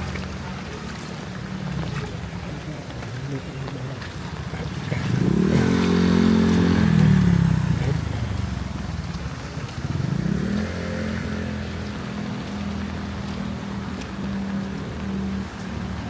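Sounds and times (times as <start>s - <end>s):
vehicle engine passing by: 4.6s - 16.0s
engine revving: 4.7s - 9.0s, 9.9s - 13.2s.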